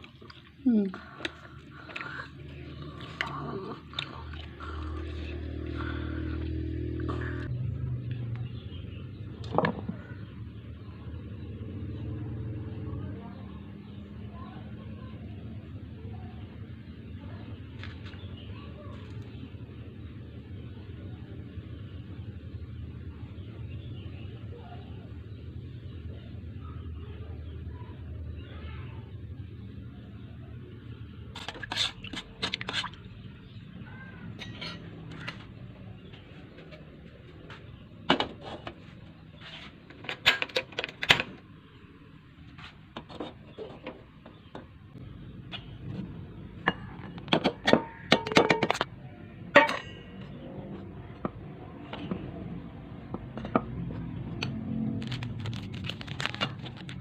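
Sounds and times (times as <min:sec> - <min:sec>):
low steady hum: 0:00.0 - 0:57.0
utensils clinking against dishes: 0:34.4 - 0:35.4, 0:49.6 - 0:50.1.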